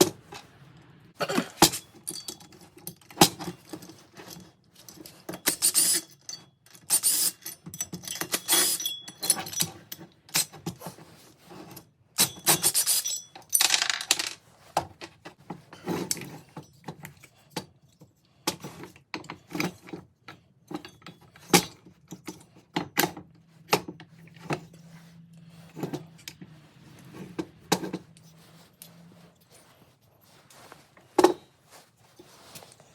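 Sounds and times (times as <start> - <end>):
metal parts clinking and jingling: 1.6 - 10.7, 11.7 - 14.4.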